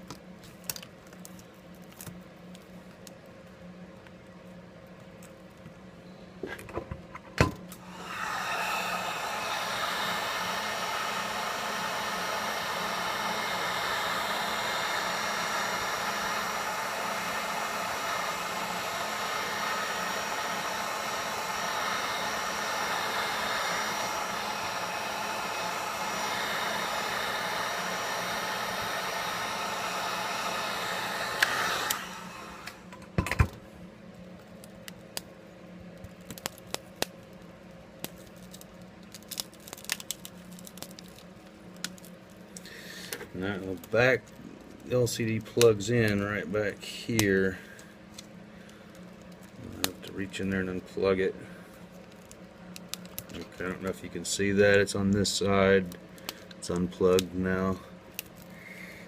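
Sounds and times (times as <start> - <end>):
heat gun blowing: 7.7 - 33.2, 56.2 - 59.0.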